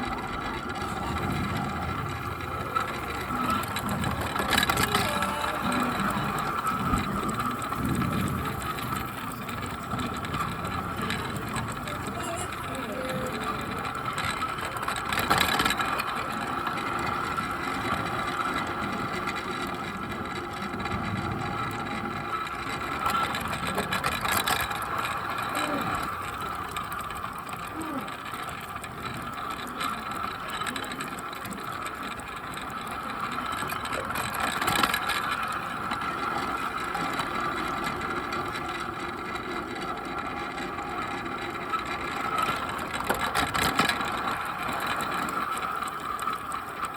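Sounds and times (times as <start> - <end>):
model train motor whine: 0.0 - 46.9
wheel and track rattle: 0.0 - 46.9.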